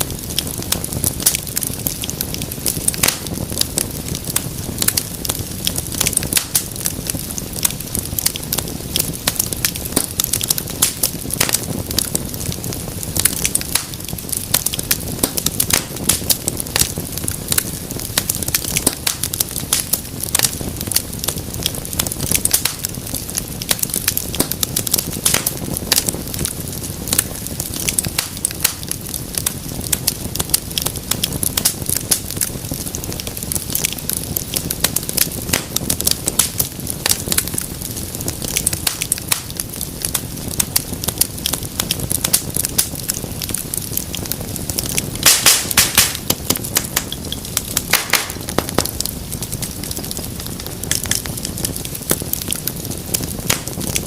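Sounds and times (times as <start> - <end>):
low rumble of flame: 0.0 - 54.0
wood fire crackling and popping: 0.0 - 54.0.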